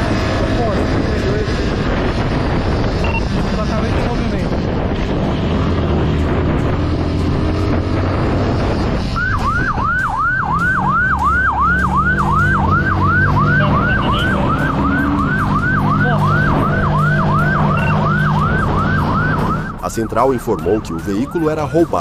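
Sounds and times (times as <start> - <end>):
wind noise: 0.0 - 10.6
vehicle engine running: 0.0 - 22.0
police siren yelping: 9.2 - 22.0.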